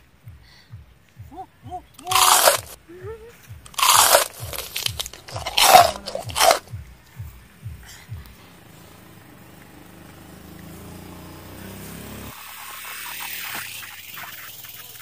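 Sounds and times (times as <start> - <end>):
crunching of fruit being chewed: 2.0 - 2.8, 3.6 - 7.2.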